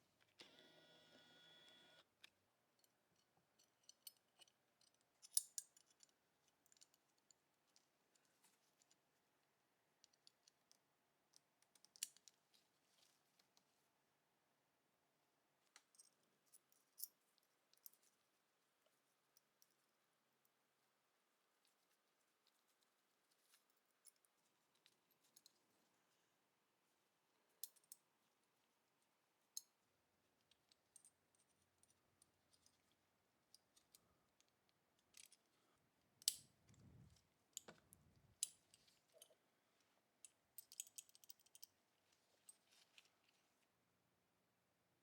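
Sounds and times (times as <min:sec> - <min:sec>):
metal parts clicking and tapping: 0:40.2 - 0:41.7.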